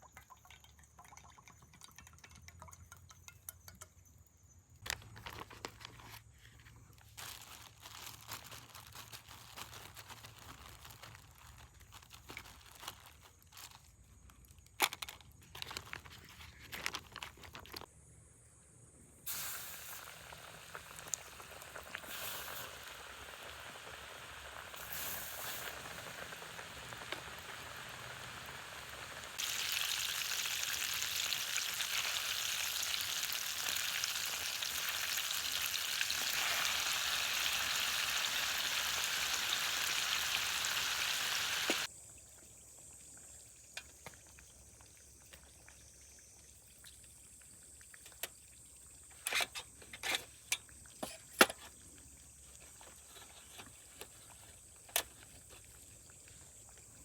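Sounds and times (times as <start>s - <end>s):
food sizzling in a pan: 19.3s - 41.9s.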